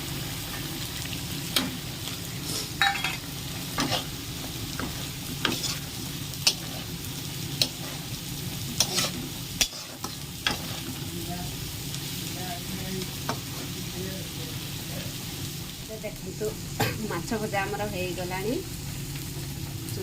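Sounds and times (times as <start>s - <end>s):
fish sizzling in oil: 0.0s - 20.0s
spatula scraping pan: 2.4s - 11.0s.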